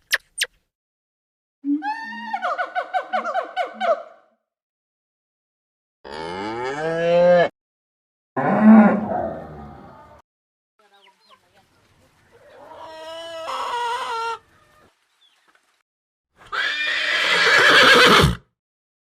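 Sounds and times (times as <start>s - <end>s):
farm animal calls: 10.8s - 14.9s.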